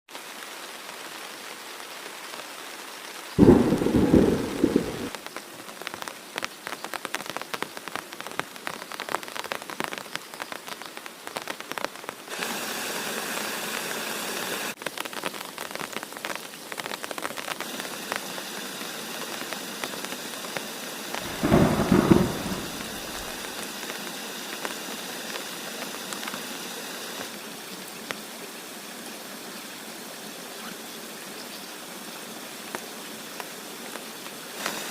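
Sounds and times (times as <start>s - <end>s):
heavy rain: 0.1s - 34.9s
thunder claps: 3.4s - 5.2s, 21.2s - 23.6s.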